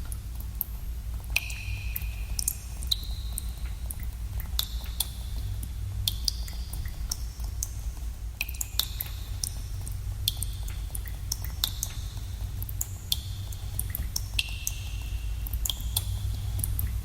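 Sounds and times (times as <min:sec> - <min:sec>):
water drops plinking in a cave: 0:01.3 - 0:07.8, 0:08.4 - 0:17.0.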